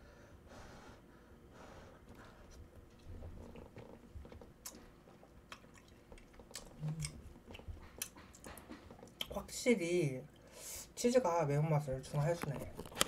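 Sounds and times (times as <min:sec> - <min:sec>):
wet chewing mouth clicks: 0:03.0 - 0:09.4.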